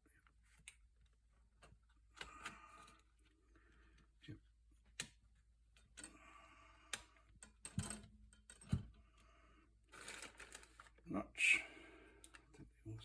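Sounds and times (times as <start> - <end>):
tools clicking and knocking: 6.9 - 9.0.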